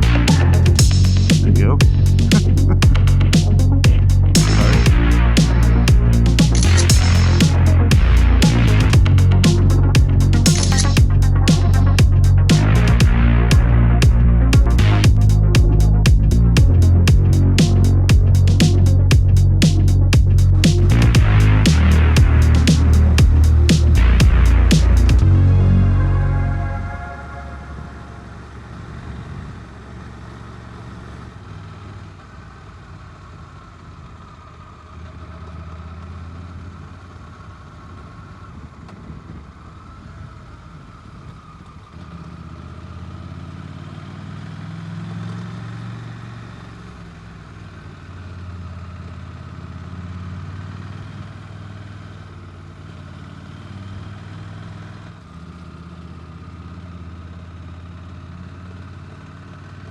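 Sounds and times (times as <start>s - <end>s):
motorcycle engine at low revs: 0.0s - 25.2s, 28.2s - 59.9s.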